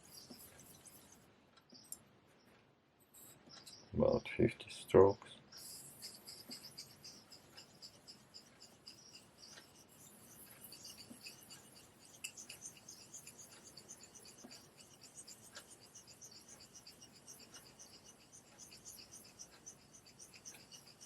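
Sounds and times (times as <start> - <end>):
razor scraping on whetstone: 0.0 - 1.3, 5.6 - 21.0.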